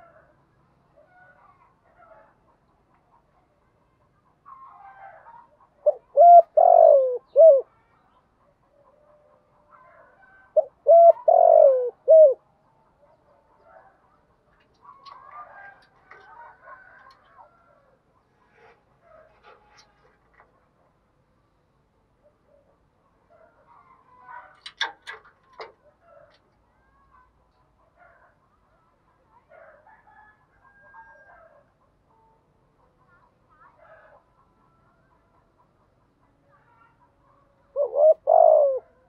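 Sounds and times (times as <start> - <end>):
dove cooing: 4.7 - 7.8, 9.8 - 12.5, 37.7 - 39.0.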